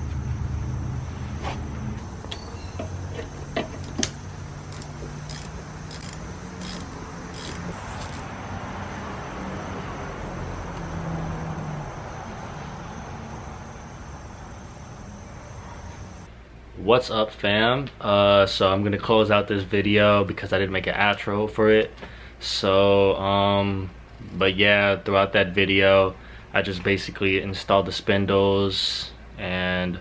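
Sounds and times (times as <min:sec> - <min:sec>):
motor vehicle running: 0:00.0 - 0:16.2.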